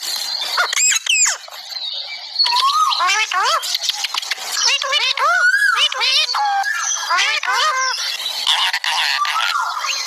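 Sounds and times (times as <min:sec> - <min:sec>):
parrot raspy chatter: 0:00.0 - 0:10.0
parrot whistle: 0:02.4 - 0:03.6, 0:04.7 - 0:10.0.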